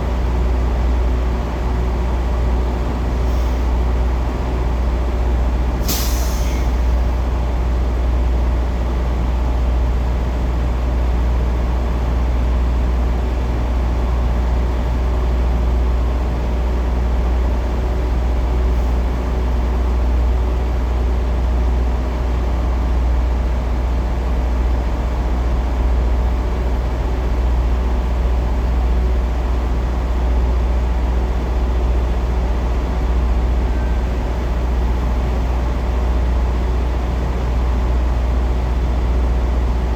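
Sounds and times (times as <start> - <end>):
diesel truck engine rumbling: 0.0 - 39.9
short air hiss: 5.8 - 6.8.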